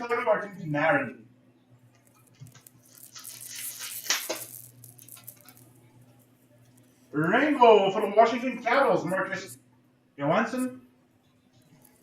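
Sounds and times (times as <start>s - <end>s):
trading cards sliding and rustling: 2.2s - 5.6s.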